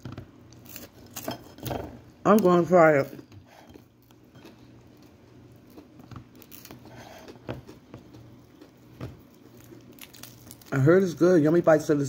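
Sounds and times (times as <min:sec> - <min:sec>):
low steady hum: 0:00.0 - 0:12.0
faint chewing: 0:02.3 - 0:10.8.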